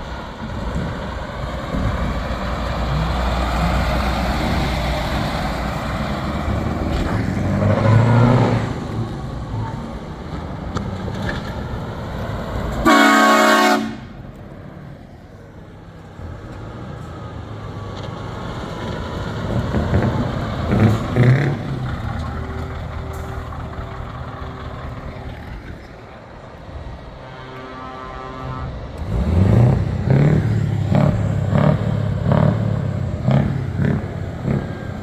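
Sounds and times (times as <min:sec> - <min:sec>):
heavy truck engines driving past: 0:00.0 - 0:35.0
truck air horn blast: 0:12.8 - 0:14.3, 0:27.1 - 0:29.6.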